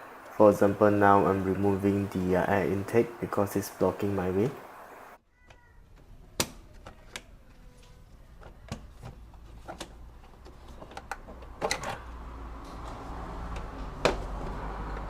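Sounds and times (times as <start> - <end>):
clicks and knocks of plastic parts: 5.5 - 12.1.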